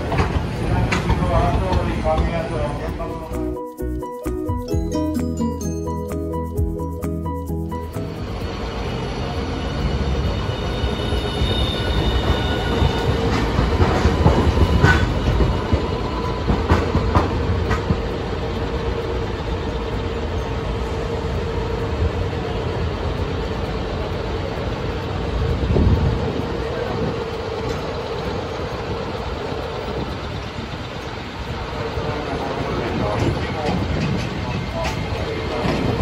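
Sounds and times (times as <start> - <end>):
wheels clicking over rail joints: 0.0 - 3.3, 13.0 - 20.4, 22.7 - 36.0
tram hum: 0.0 - 36.0
faint high wheel squeal: 8.8 - 16.9.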